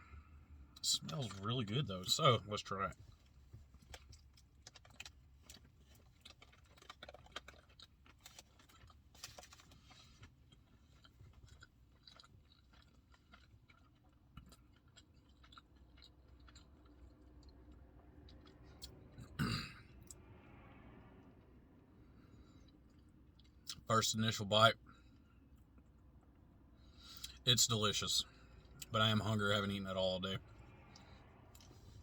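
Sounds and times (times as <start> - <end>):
person chewing burger: 3.1 - 20.2, 30.8 - 32.0.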